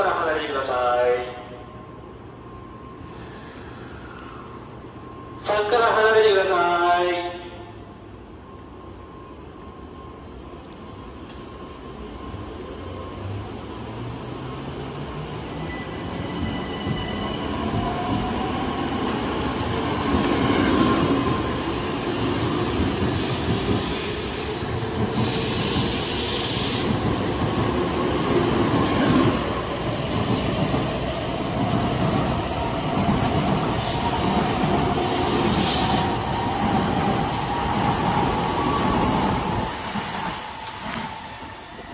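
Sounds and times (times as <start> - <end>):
wheel and rail noise: 26.8 - 41.9.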